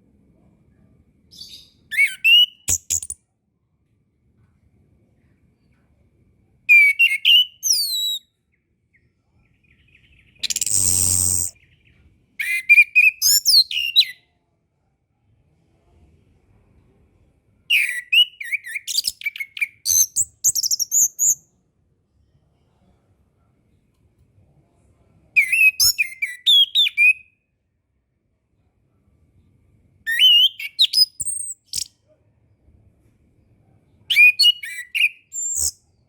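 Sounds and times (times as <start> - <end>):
thrush singing high whistled notes: 10.5 - 11.6.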